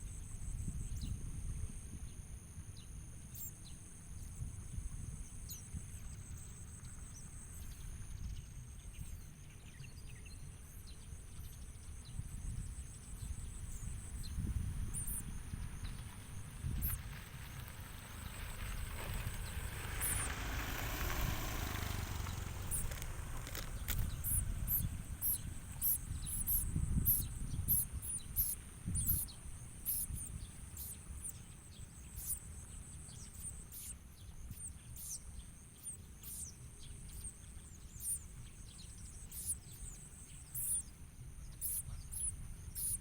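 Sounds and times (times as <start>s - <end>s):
small bird chirping: 2.8s - 43.0s
high insect whine: 11.5s - 34.0s.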